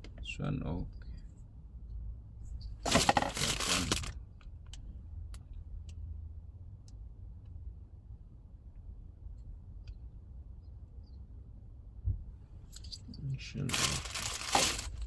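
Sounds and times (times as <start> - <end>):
rattling scrape of parts: 2.8 - 4.1, 13.7 - 15.0.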